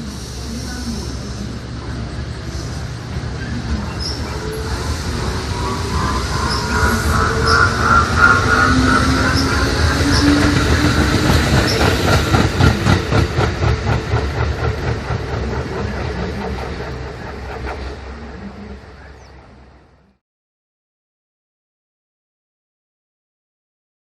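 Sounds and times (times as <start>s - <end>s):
train whine: 0.0s - 20.2s
train wheels clickety-clack: 5.5s - 18.4s.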